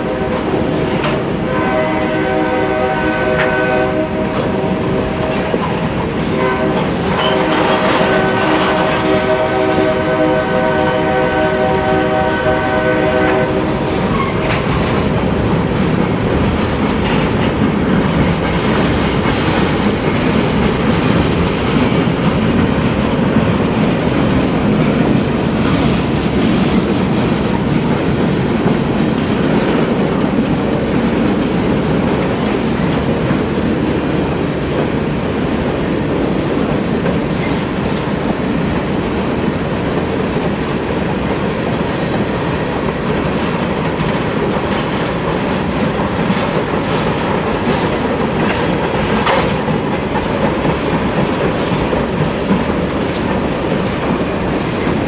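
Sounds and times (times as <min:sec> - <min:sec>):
clickety-clack over rail joints: 0:00.0 - 0:55.0
freight train wheels rumbling: 0:00.0 - 0:55.0
train horn blast: 0:01.4 - 0:14.3.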